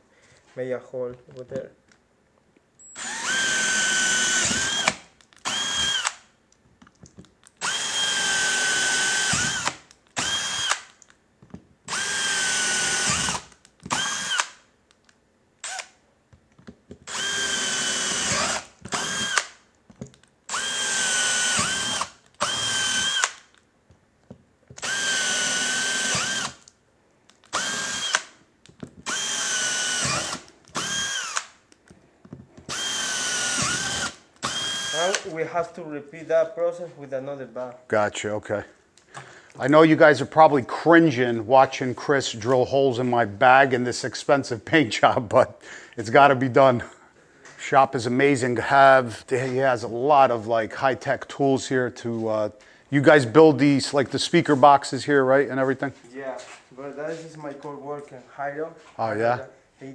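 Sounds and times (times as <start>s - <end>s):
power drill whining: 2.8s - 6.3s, 7.6s - 11.0s, 11.9s - 14.6s, 15.6s - 16.0s, 17.0s - 19.6s, 20.5s - 23.6s, 24.8s - 26.7s, 27.4s - 28.4s, 29.0s - 31.6s, 32.7s - 35.3s.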